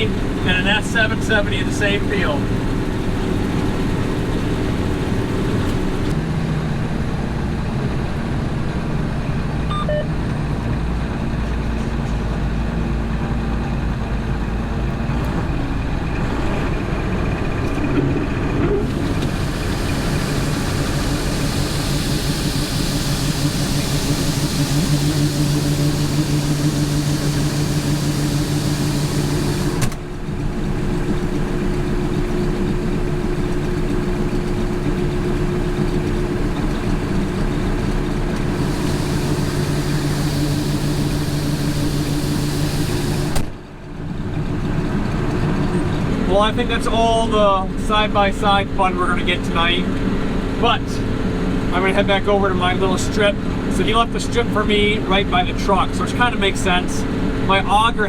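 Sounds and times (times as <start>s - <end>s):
combine harvester engine drone: 0.0s - 58.0s
hiss: 18.9s - 29.9s, 36.1s - 43.4s.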